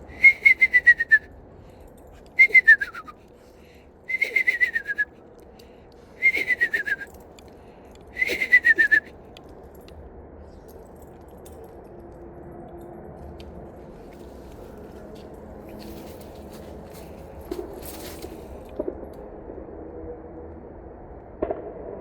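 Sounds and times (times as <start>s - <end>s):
whistled owl call imitation: 0.1s - 1.3s, 2.4s - 3.2s, 4.1s - 5.1s, 6.2s - 7.1s, 8.2s - 9.1s.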